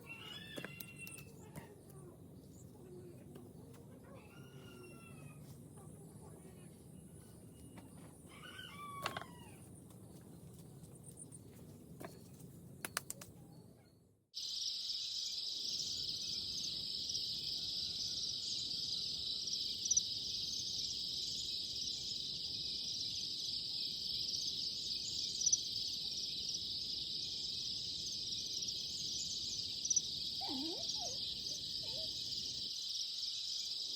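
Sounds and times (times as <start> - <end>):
high-pitched insect chorus: 14.4 - 33.9.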